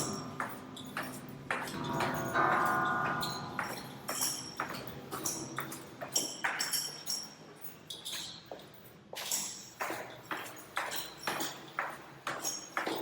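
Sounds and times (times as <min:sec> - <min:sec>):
metal handrail being struck: 0:01.7 - 0:04.8
metallic ringing: 0:01.7 - 0:05.4.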